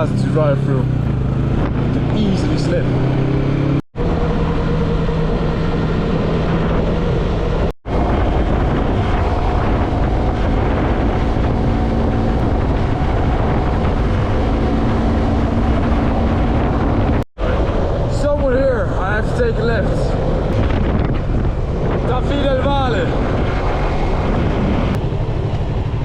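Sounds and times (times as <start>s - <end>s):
motorcycle engine cruising: 0.0s - 26.0s
road and wind noise: 0.0s - 26.0s.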